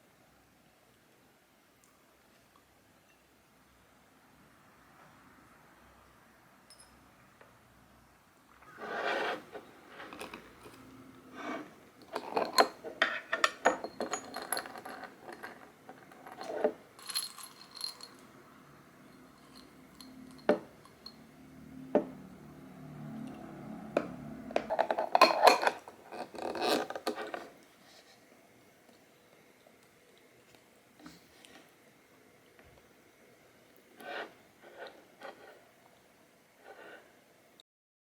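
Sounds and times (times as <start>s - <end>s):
dishes and cutlery clinking: 12.0s - 18.1s, 19.4s - 21.2s, 24.6s - 27.5s.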